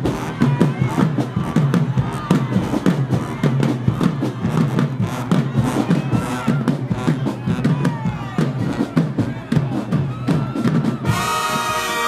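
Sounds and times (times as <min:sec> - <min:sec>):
bass drums and snares: 0:00.0 - 0:11.2
crowd voices: 0:00.0 - 0:12.0
marching band playing: 0:00.0 - 0:12.0.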